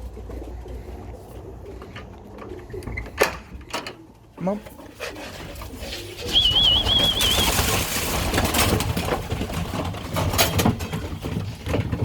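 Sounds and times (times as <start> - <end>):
pigeon wings flapping: 5.1 - 12.0
warbling whistle: 6.2 - 7.6
knocks and rattles: 6.4 - 12.0.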